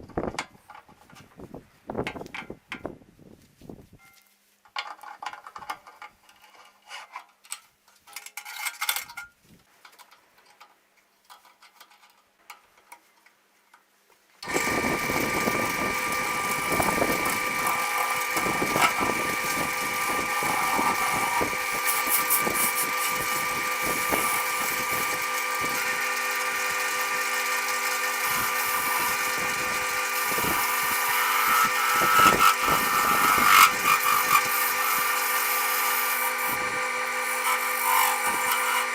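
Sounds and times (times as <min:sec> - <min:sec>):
turning tool cutting wood: 0:14.4 - 0:38.9
wood lathe whining: 0:14.4 - 0:38.9.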